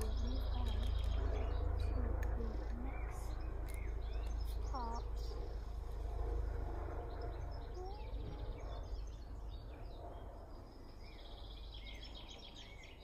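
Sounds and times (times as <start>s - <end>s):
bird chirps and trill: 0.0s - 5.5s, 6.8s - 13.0s
low steady rumble: 0.0s - 13.0s.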